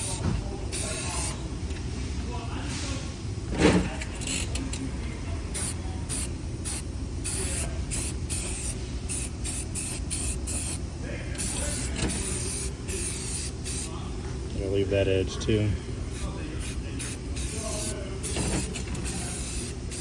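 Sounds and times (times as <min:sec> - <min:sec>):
spray can hissing: 0:00.0 - 0:01.4, 0:05.6 - 0:10.8, 0:11.4 - 0:13.9, 0:16.1 - 0:20.0.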